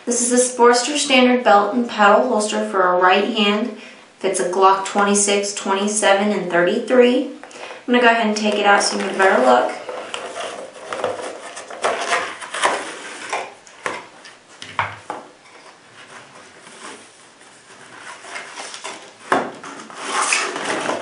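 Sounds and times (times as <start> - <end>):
packaging rustling: 9.0 - 14.1.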